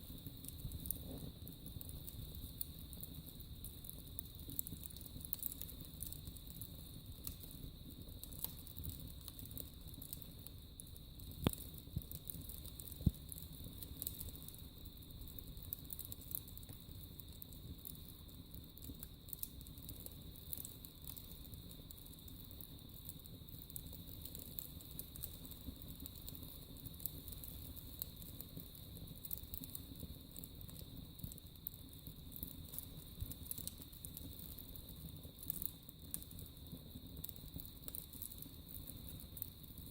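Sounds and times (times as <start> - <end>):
loud fire pops: 0.0 - 21.3
fire crackling and snapping: 0.0 - 39.9
wood fire flames rumbling: 0.0 - 39.9.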